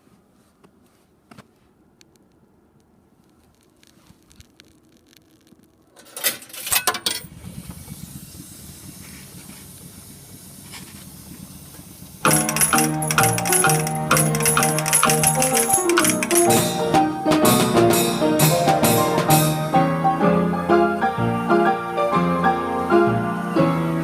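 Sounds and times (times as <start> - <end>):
faint mechanical clicks: 0.6 - 6.2
loud mechanical clacks: 11.8 - 16.8.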